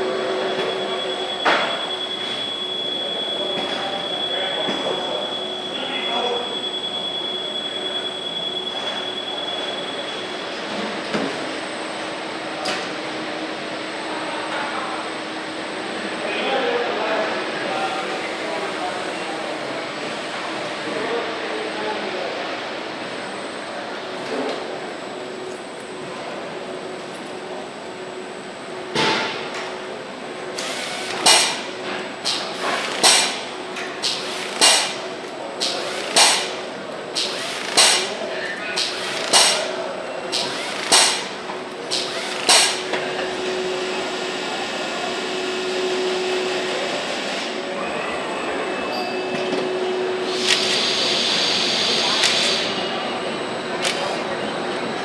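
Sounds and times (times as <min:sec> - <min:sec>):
factory machinery noise: 0:00.0 - 0:55.0
steady high tone: 0:47.7 - 0:55.0.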